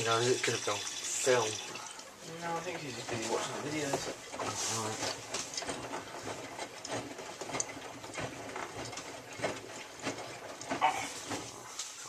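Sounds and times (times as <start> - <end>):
washing machine drum turning: 0.0 - 1.8.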